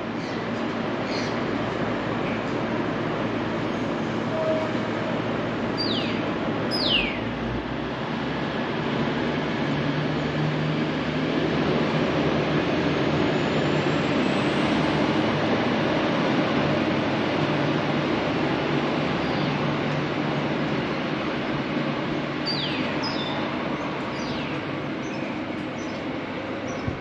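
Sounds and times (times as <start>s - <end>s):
diesel train rumbling: 0.0s - 27.0s.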